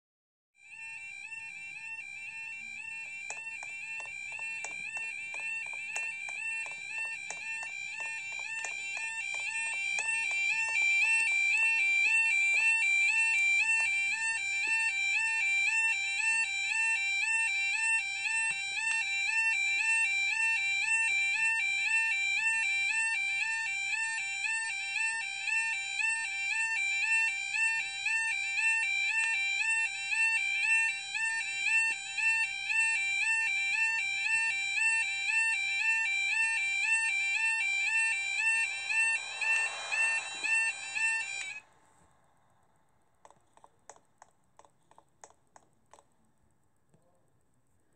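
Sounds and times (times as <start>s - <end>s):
level crossing alarm warbling: 0.6s - 41.6s
rapid regular clicking: 43.2s - 46.9s.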